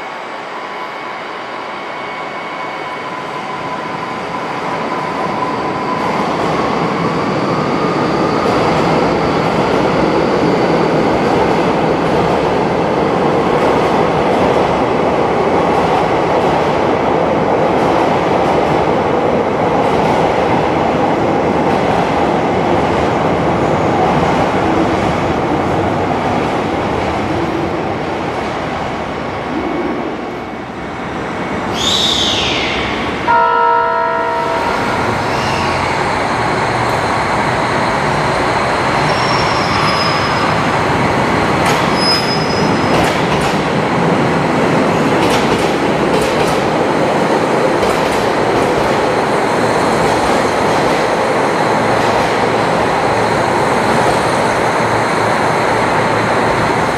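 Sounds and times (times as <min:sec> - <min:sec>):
train rail and motor noise: 0:00.0 - 0:56.9
train horn blast: 0:33.3 - 0:35.1
wheel squeal: 0:39.0 - 0:40.6, 0:42.0 - 0:42.9.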